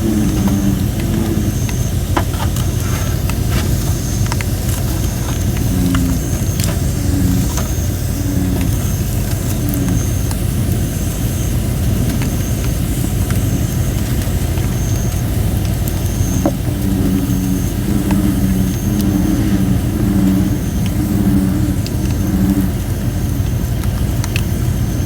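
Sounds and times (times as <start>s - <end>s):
bullfrog calling: 0.0s - 11.1s, 14.8s - 24.0s
campfire crackling: 0.0s - 25.0s
steady low rumble: 0.0s - 25.0s
wood hissing and whistling: 0.0s - 25.0s.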